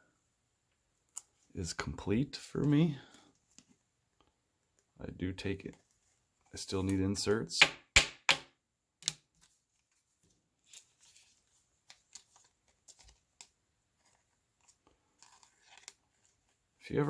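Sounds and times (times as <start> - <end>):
cards being flipped through: 9.0 - 16.6.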